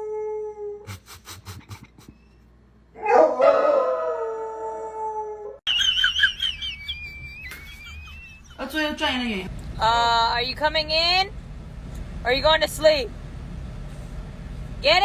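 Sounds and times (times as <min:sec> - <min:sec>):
dog howling: 0:03.0 - 0:05.6
low rumble: 0:08.3 - 0:15.0.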